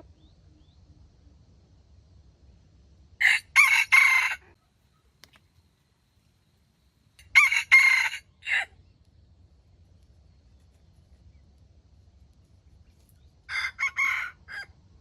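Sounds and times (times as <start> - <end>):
rooster crowing: 3.2 - 4.6, 7.2 - 8.8, 13.5 - 14.9.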